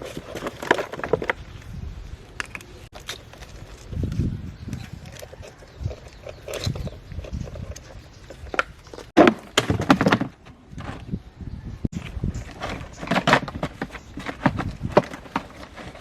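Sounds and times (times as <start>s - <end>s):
parts knocking and clattering: 0.0s - 1.4s, 4.8s - 11.2s, 11.9s - 16.0s.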